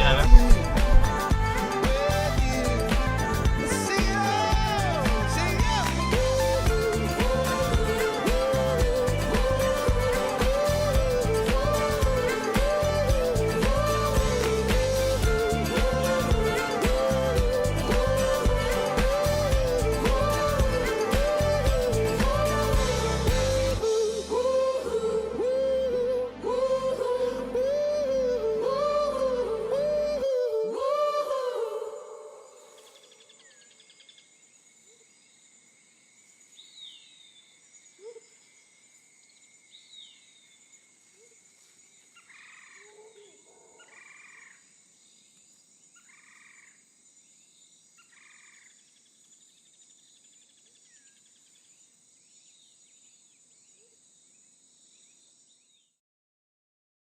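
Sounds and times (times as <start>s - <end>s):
thin high hum: 0.0s - 3.2s
birds chirping: 0.0s - 23.7s
pop song with singer: 0.0s - 32.9s.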